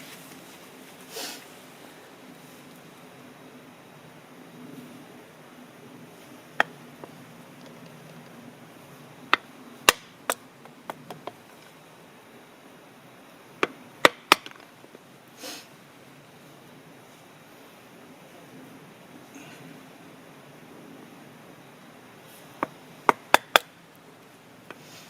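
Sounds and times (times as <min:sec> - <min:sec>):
soft rush of noise: 0:00.0 - 0:25.0
sharp wooden knocks and cracks: 0:09.4 - 0:11.5, 0:13.6 - 0:14.7, 0:22.6 - 0:23.7.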